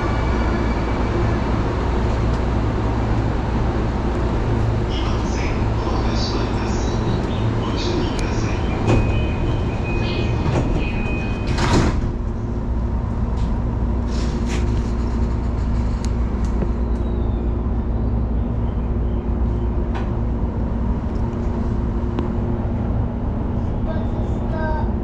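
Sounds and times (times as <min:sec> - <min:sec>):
train running hum: 0:00.0 - 0:25.0
train doors sliding shut: 0:04.1 - 0:12.5.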